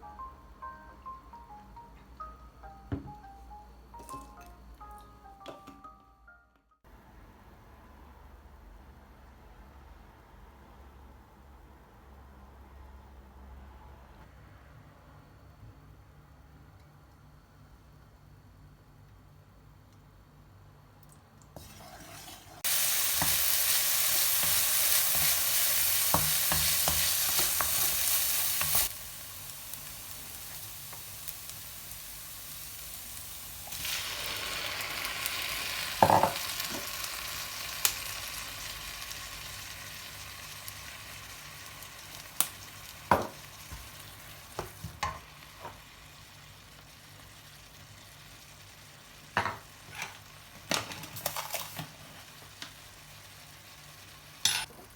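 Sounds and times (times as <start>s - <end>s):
food sizzling in a pan: 21.6s - 54.9s.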